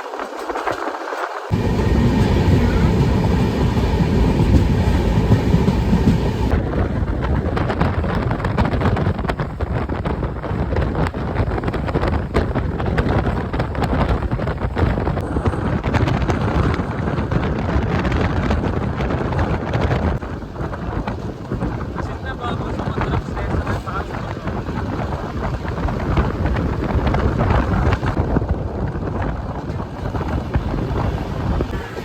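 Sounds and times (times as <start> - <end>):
wheels clattering over rails: 0.2 - 6.6
train coach rumble: 1.5 - 32.0.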